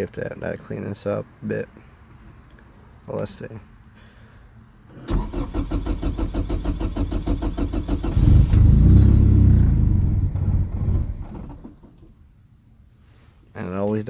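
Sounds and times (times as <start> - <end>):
car engine cranking: 4.9 - 12.1
car engine running loudly: 7.0 - 11.7.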